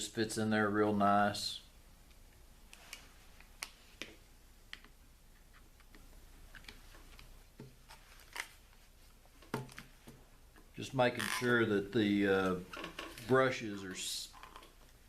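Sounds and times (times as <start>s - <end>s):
faint clicks and taps of parts: 2.1s - 8.0s.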